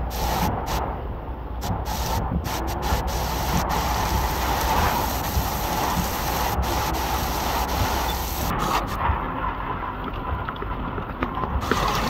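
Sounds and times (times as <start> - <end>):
heavy rain hiss: 0.0 - 1.0, 1.6 - 9.0, 11.6 - 12.0.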